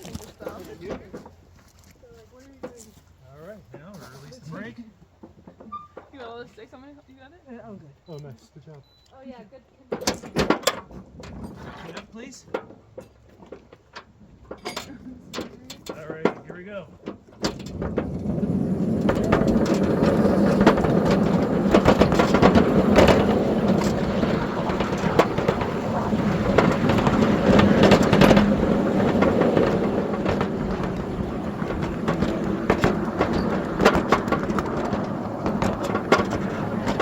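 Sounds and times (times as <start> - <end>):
train clicks and knocks: 0.0 - 1.6, 9.9 - 37.0
miniature train wheels rumbling on rail: 0.0 - 7.2, 9.6 - 37.0.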